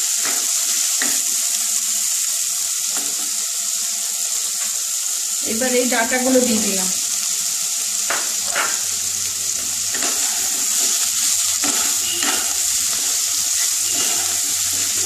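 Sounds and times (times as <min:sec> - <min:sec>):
food sizzling in hot oil: 0:00.0 - 0:15.0
wooden spatula scraping a pan: 0:09.9 - 0:11.0, 0:11.6 - 0:15.0.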